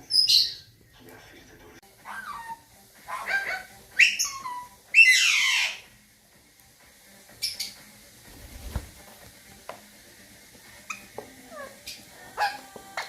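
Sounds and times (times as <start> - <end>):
parakeet squawking: 0.0 - 0.7, 2.0 - 5.9, 10.8 - 13.0.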